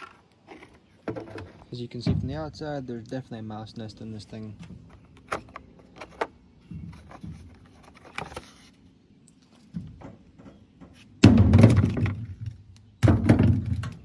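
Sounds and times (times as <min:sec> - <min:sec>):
rattling scraping handling noise: 0:00.0 - 0:02.4, 0:04.4 - 0:08.8.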